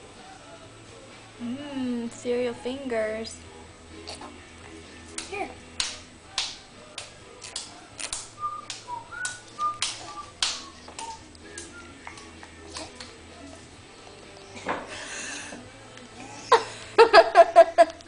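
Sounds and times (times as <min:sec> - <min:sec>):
hands slapping ground beef: 0:05.1 - 0:13.2.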